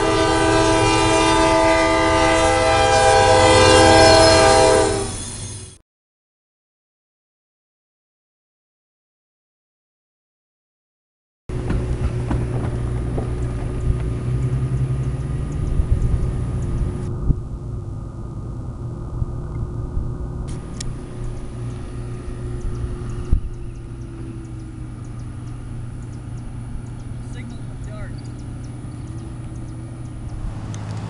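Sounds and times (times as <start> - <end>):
vehicle engine rumbling: 11.5 - 31.0
faint steady hum: 16.0 - 30.5.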